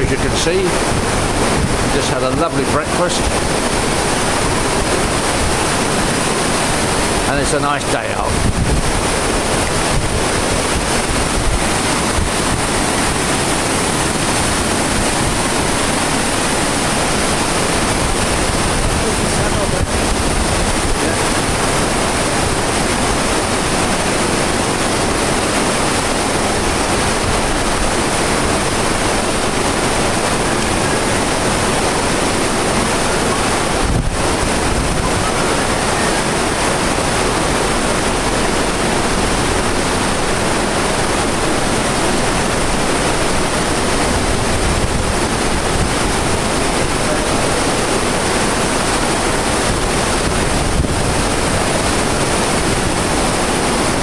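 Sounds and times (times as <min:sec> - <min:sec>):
wind on microphone: 0:00.0 - 0:02.5, 0:08.0 - 0:54.0
ship wake churning water: 0:00.0 - 0:54.0.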